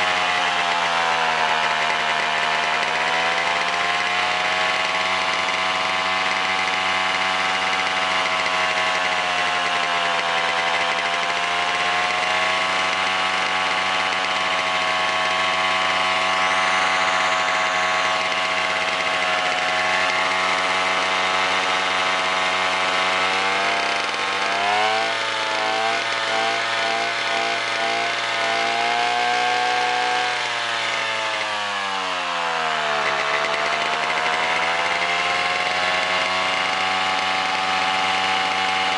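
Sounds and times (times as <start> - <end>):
stationary engine running: 0.0 - 38.9.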